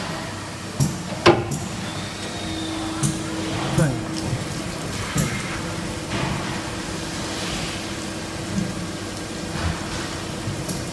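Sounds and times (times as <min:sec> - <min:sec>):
metal lathe running: 0:01.1 - 0:07.0.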